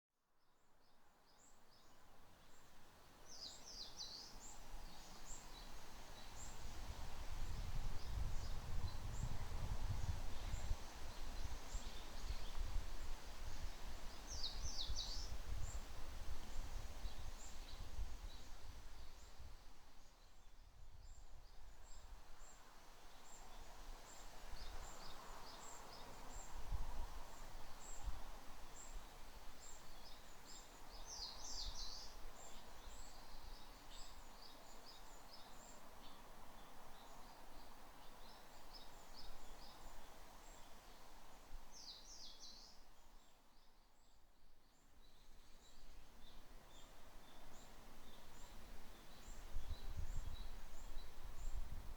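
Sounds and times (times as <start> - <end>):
leaves rustling in wind: 1.4 - 51.9
wind buffeting microphone: 6.7 - 10.8.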